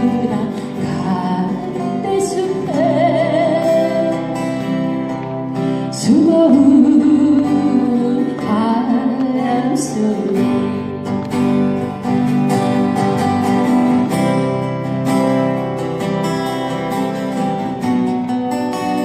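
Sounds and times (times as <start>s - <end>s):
person singing with vibrato: 0.0s - 11.1s
strummed acoustic guitars: 0.0s - 19.0s.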